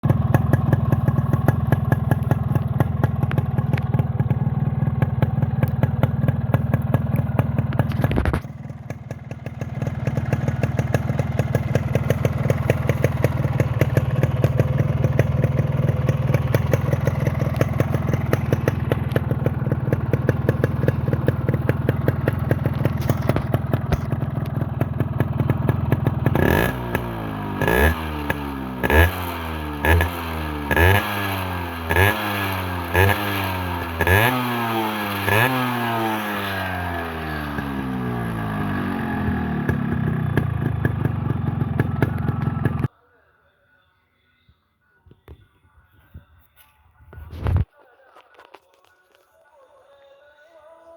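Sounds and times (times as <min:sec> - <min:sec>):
motorcycle engine idling: 0:00.0 - 0:42.9
engine revving in throttle blips: 0:09.8 - 0:42.9.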